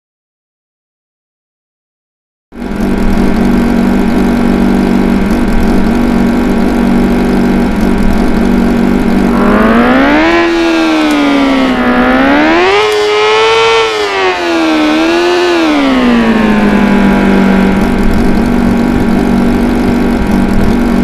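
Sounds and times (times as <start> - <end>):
loud droning siren-like tone: 9.3 - 19.9.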